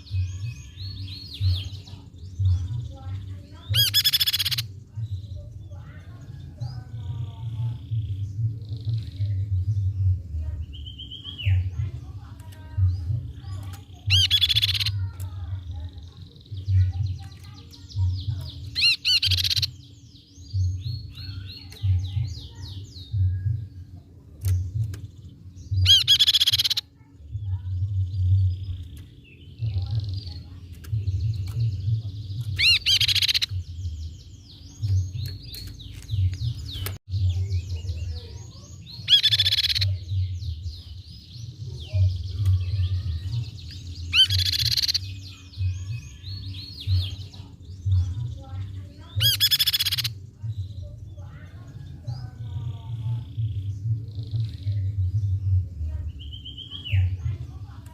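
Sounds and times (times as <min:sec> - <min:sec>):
bird calling with trilled notes: 0:00.0 - 0:06.2, 0:10.8 - 0:57.8
soft bird chirps: 0:00.0 - 0:57.9.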